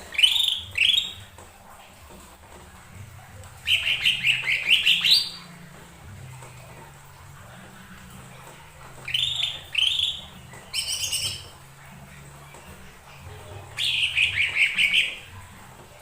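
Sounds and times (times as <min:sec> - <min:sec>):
bird singing high phrases: 0:00.0 - 0:01.3, 0:03.6 - 0:05.5, 0:09.1 - 0:11.6, 0:13.7 - 0:15.3.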